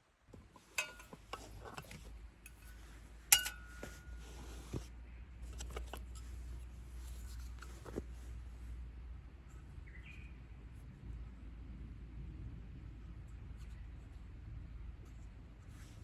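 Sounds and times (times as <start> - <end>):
hard objects clicking and knocking: 0.4 - 4.8
metallic clink: 0.7 - 4.8.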